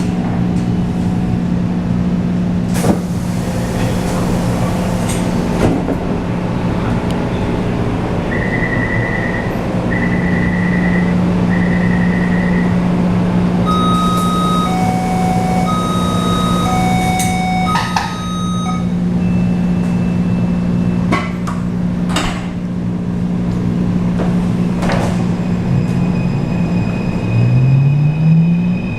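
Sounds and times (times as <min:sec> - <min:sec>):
train running hum: 0:00.0 - 0:28.9
two-tone beeps: 0:13.7 - 0:20.2
long beeps: 0:13.7 - 0:20.6.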